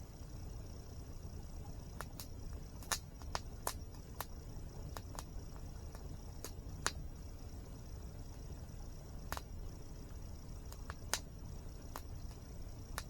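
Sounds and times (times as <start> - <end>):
campfire crackling and popping: 1.6 - 7.3, 8.0 - 13.0.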